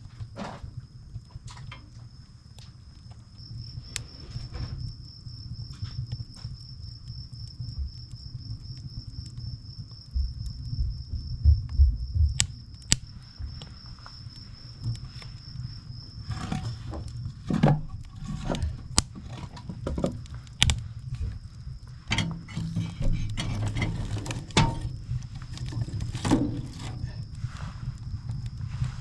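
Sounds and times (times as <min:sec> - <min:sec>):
firewood crackling and popping: 0:00.0 - 0:29.0.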